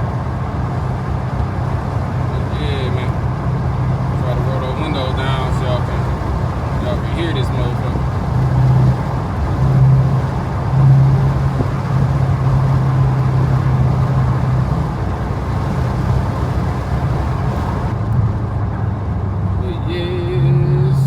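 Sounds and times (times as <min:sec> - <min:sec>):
car engine exhaust while driving: 0:00.0 - 0:21.0
wind noise: 0:07.6 - 0:19.5.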